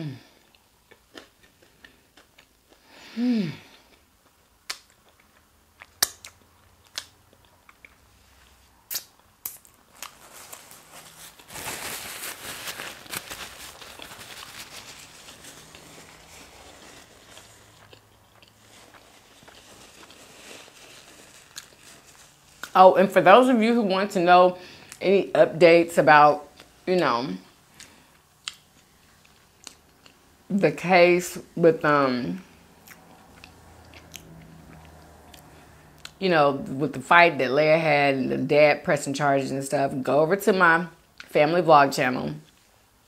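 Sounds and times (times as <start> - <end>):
person humming: 3.1 - 3.6
chewing and wet mouth clicks: 4.2 - 8.0, 17.7 - 18.6, 27.8 - 30.2, 32.8 - 36.2
rustling: 9.5 - 23.0.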